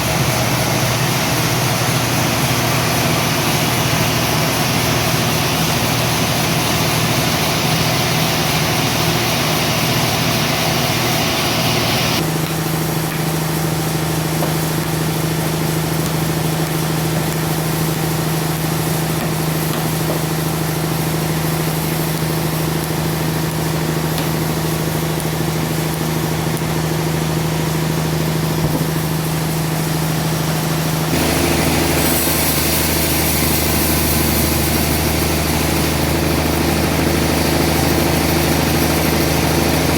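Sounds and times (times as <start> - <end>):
engine hum: 0.0 - 39.9
sawmill machinery sawing a log: 0.0 - 39.9
high hiss: 27.8 - 39.9.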